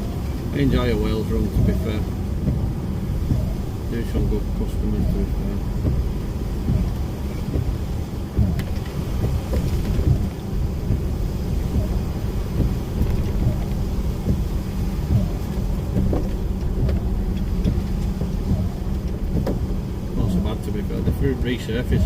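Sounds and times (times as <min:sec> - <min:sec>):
lorry engine and road rumble: 0:00.0 - 0:22.0
knocks and rattles: 0:05.7 - 0:21.2.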